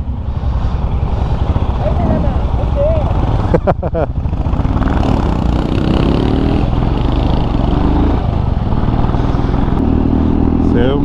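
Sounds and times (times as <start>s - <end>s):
motorcycle engines running: 0.0s - 11.0s.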